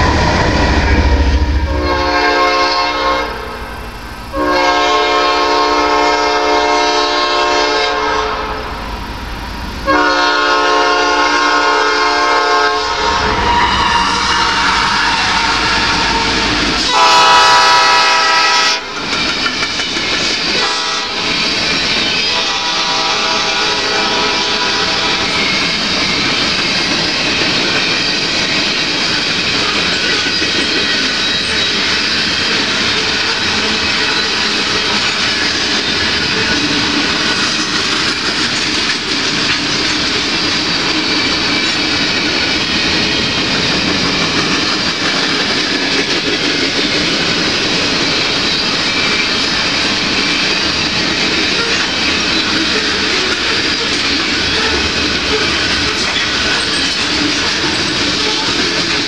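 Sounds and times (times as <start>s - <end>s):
train horn blasts: 0.0s - 8.9s, 9.8s - 19.0s, 20.6s - 21.2s, 22.3s - 25.4s
freight cars rumbling over rails: 0.0s - 59.0s.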